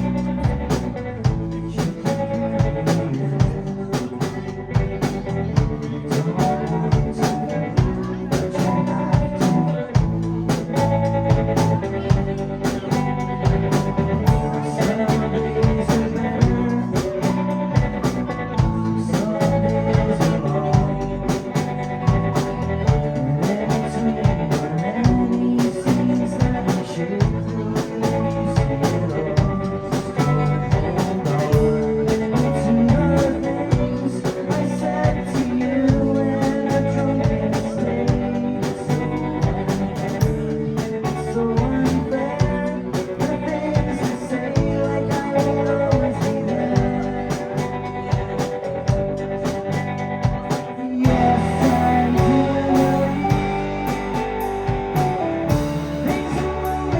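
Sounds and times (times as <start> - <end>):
bass guitar: 0.0 - 56.9
electric guitar: 0.0 - 56.9
drum kit hits: 48.1 - 56.9.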